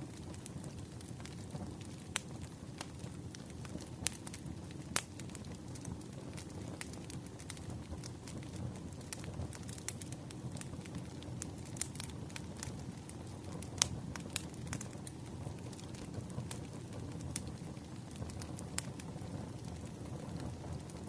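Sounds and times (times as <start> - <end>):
firewood crackling and popping: 0.0 - 21.0
low rumble of flames: 0.0 - 21.0.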